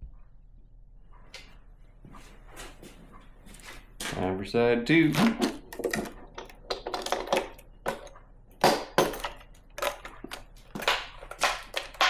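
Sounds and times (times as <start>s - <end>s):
tools and metal parts clattering: 5.3s - 12.0s.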